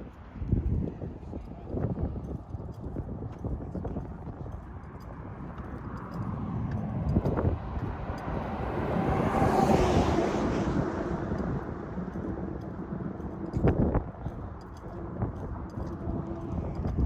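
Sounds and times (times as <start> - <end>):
wind rumbling on microphone: 0.0 - 17.0
vehicle driving past: 5.8 - 14.2.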